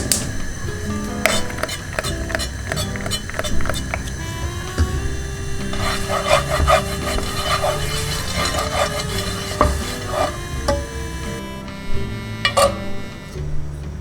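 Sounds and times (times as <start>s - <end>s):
soft background music: 0.0s - 14.0s
utensil scraping in a bowl: 0.5s - 11.4s.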